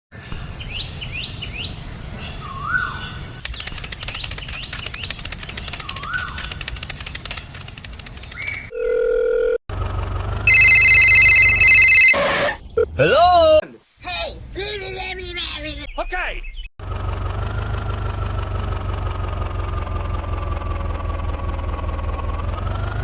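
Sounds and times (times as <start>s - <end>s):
birds chirping: 0.1s - 8.8s, 10.6s - 16.7s
rapid ticking: 3.4s - 8.7s
steady electronic tone: 10.5s - 12.3s
loud electronic beep: 10.5s - 12.9s.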